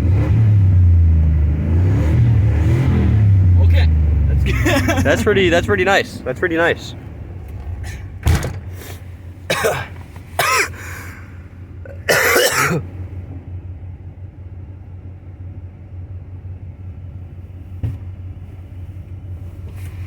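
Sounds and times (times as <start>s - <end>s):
vehicle engine idling: 0.0s - 20.0s
person coughing: 9.5s - 11.2s, 11.9s - 12.9s.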